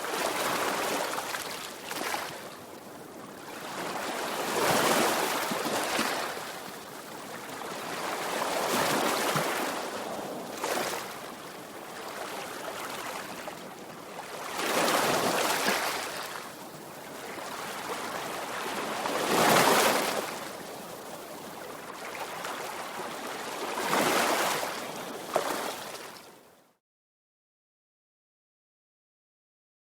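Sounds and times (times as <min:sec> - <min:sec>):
sea waves crashing on shore: 0:14.3 - 0:26.1.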